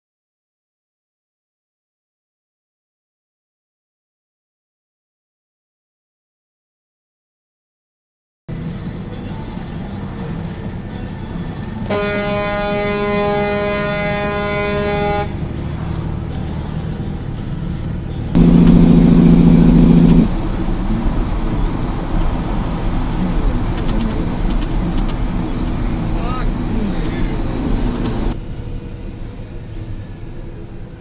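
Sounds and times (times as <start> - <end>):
road and engine noise: 8.5 - 31.0
car horn: 11.9 - 15.5, 18.4 - 20.4
truck air horn blast: 11.9 - 15.6, 18.4 - 20.4.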